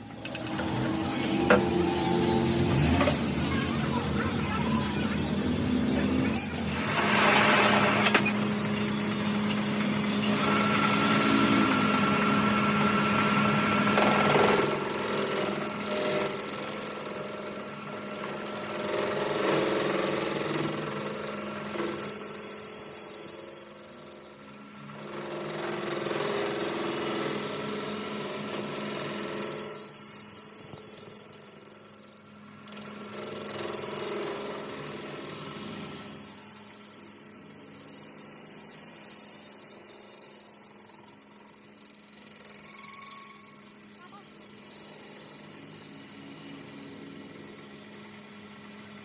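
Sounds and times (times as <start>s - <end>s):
power tool humming: 0.0s - 49.0s
high-pitched squealing: 33.2s - 49.0s.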